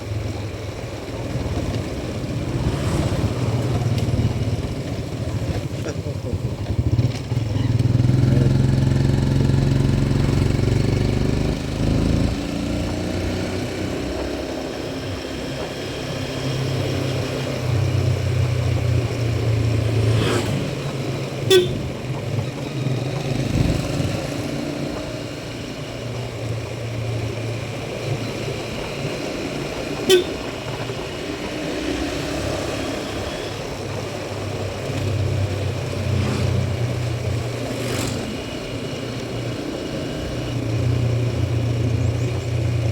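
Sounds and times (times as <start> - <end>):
motorcycle engine: 0.0 - 42.9
road and wind noise: 0.0 - 42.9
horn toots: 21.4 - 22.1, 30.0 - 30.6.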